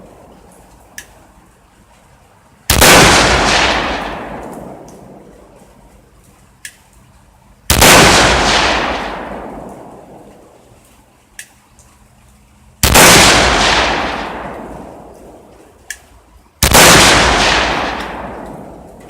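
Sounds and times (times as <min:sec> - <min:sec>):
rifle shots with long echo: 0:02.7 - 0:05.6, 0:07.7 - 0:10.6, 0:12.8 - 0:15.7, 0:16.6 - 0:19.0.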